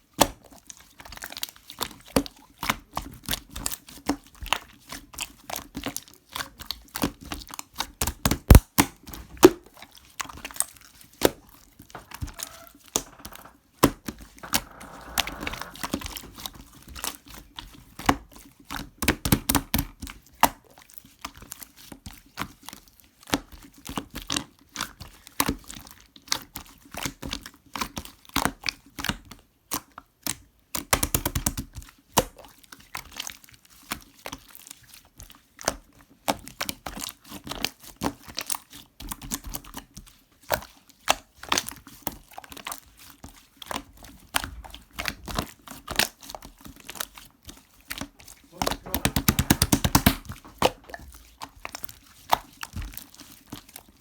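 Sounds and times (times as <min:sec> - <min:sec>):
sharp clicks and taps: 0:48.6 - 0:50.2.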